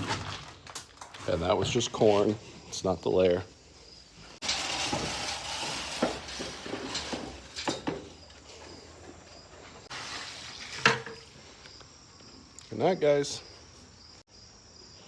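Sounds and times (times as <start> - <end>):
grain pouring hiss: 4.2 - 7.6, 9.8 - 11.5.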